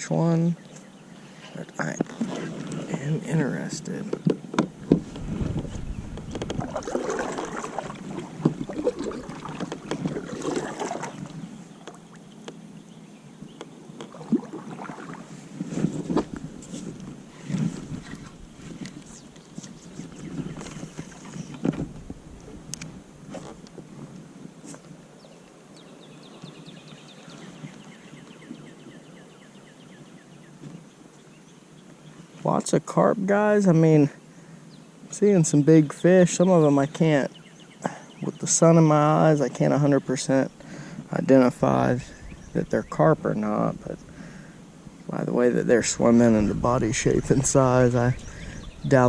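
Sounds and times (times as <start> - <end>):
bird chirping: 0.3 - 4.4, 5.6 - 15.1, 19.0 - 21.8, 25.2 - 32.4, 34.6 - 44.5, 45.1 - 49.0
water splashing around kayak: 4.8 - 12.5, 14.0 - 18.8.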